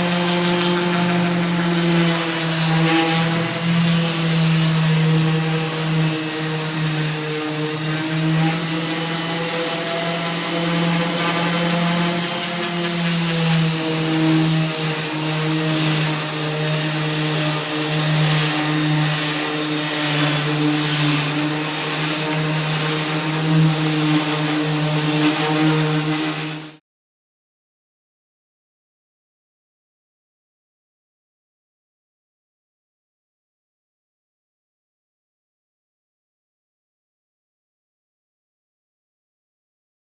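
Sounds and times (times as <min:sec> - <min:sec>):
power sander running: 0:00.0 - 0:26.7.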